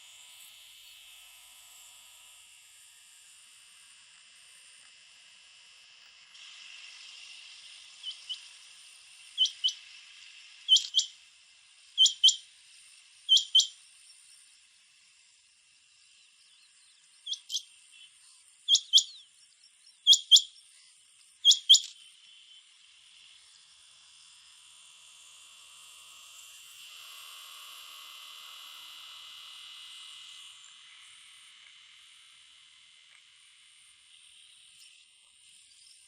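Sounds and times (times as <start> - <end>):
high insect hum: 0.0 - 36.0
quail calling: 9.4 - 9.8, 10.7 - 11.1, 12.0 - 12.4, 13.3 - 13.7, 17.3 - 17.6, 18.7 - 19.2, 20.1 - 20.5, 21.5 - 21.9.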